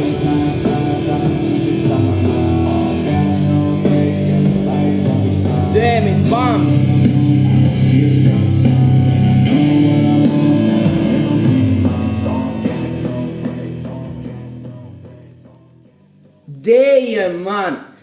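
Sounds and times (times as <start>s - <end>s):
rap music from a speaker: 0.0s - 16.5s.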